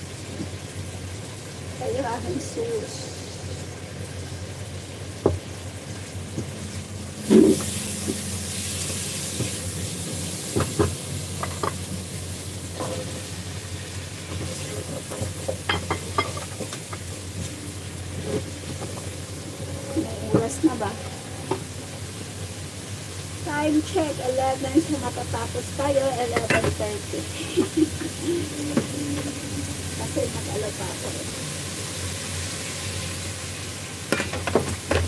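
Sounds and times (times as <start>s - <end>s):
food sizzling in a hot pan: 0.0s - 35.0s
spatula clinking on pan and plate: 15.7s - 17.0s.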